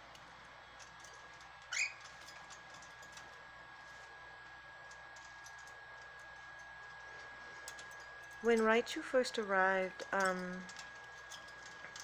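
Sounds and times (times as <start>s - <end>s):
cockatiel rising chirp: 1.7s - 2.0s.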